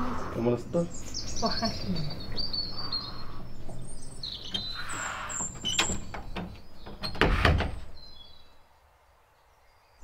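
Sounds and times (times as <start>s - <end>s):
small birds chirping: 0.0s - 10.0s
wooden door shutting: 4.4s - 8.0s.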